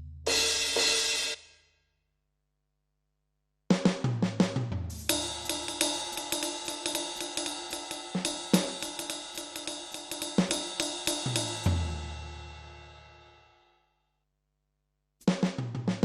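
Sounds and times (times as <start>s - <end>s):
snare drum: 3.8s - 11.9s
bass drum: 3.8s - 13.0s
electronic cymbal beat: 5.0s - 12.4s.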